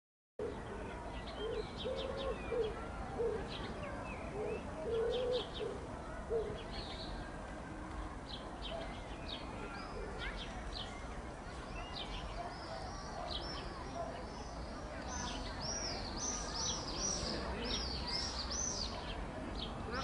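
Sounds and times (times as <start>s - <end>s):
dove cooing: 1.4s - 3.6s, 4.3s - 6.6s
small birds chirping: 8.0s - 20.0s.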